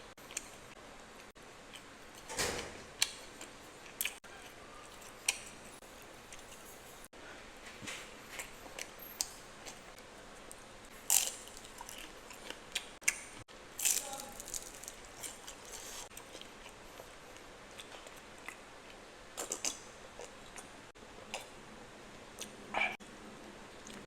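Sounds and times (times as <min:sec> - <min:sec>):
person chewing crunchy food: 0:11.0 - 0:13.2, 0:13.8 - 0:21.6.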